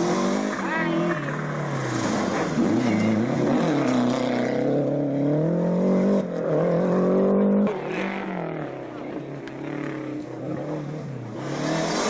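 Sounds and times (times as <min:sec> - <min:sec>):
rally car engine accelerating: 0:00.0 - 0:12.0.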